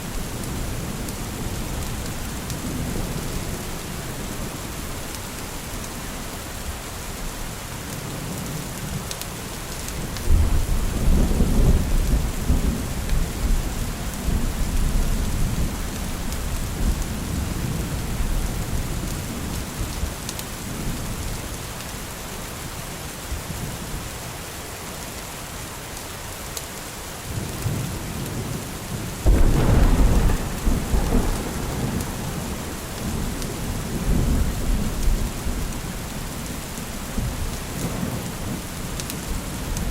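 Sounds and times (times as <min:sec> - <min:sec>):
steady rain falling: 0:00.0 - 0:39.9
thunder rumbling: 0:29.2 - 0:36.5.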